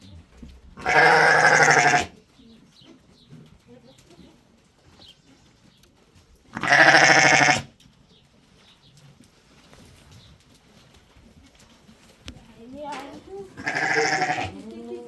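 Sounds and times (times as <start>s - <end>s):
livestock bleating: 0.8s - 2.2s, 6.6s - 7.7s, 13.5s - 15.0s.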